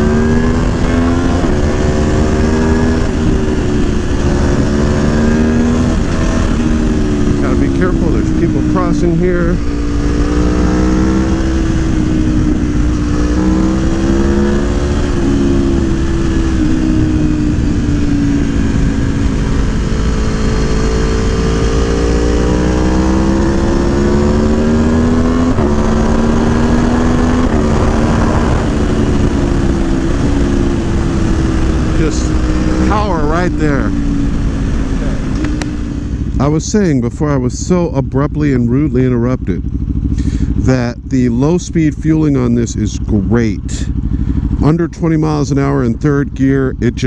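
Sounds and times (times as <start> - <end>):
riding wind rushing: 0.0 - 37.0
motorcycle engine running: 0.0 - 47.0.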